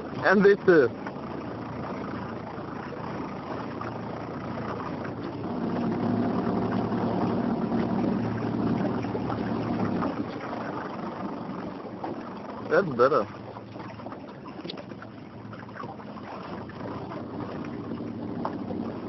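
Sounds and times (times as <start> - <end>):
motorboat engine humming: 0.0 - 19.0.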